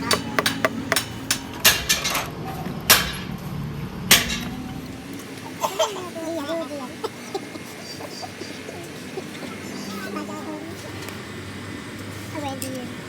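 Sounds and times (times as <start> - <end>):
hand tools knocking metal parts: 0.0 - 2.2, 2.9 - 3.3, 4.1 - 4.5.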